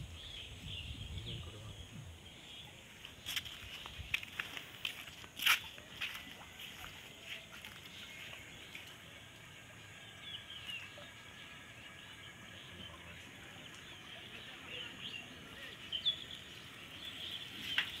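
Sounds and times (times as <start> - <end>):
bird chirps: 6.7 - 18.0.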